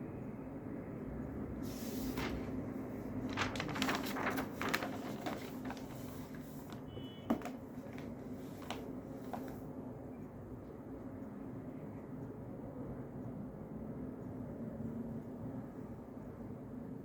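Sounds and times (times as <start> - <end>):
steady low hum: 0.8 - 6.8
short rustles and clicks: 1.8 - 9.6.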